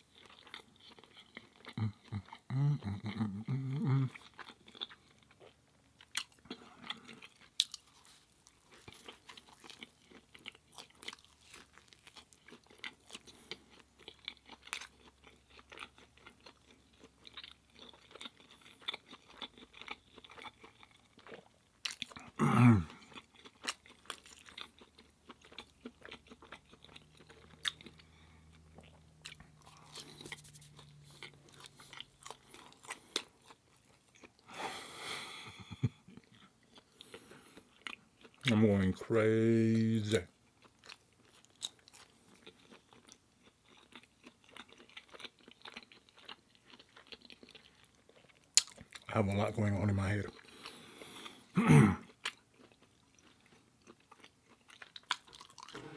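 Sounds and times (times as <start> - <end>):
chewing and crunching food: 0.0 - 55.9
low throat sound: 1.7 - 4.2, 22.3 - 23.0, 51.5 - 52.1.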